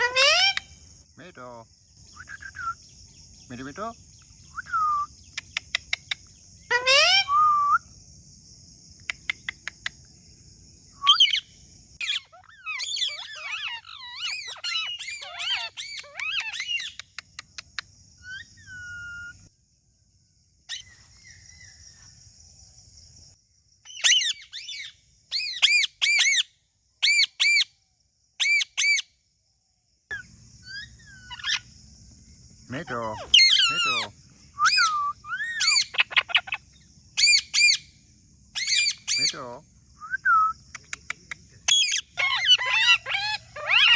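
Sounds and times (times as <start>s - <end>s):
parrot screeching: 0.0s - 0.6s, 6.7s - 7.3s, 12.0s - 16.9s, 18.2s - 19.4s, 23.9s - 27.6s, 28.4s - 29.0s, 30.1s - 31.7s, 32.9s - 36.6s, 37.2s - 37.8s, 38.6s - 39.4s, 41.7s - 43.9s
parrot calling and chattering: 0.0s - 0.8s, 5.3s - 7.3s, 11.1s - 11.4s, 12.0s - 19.5s, 23.9s - 27.7s, 28.4s - 29.0s, 30.1s - 31.7s, 32.7s - 37.9s, 38.5s - 39.6s, 40.8s - 43.9s.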